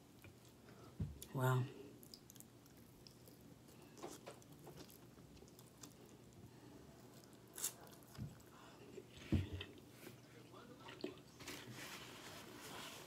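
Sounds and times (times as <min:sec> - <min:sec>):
biting and chewing broccoli: 0:02.0 - 0:08.5.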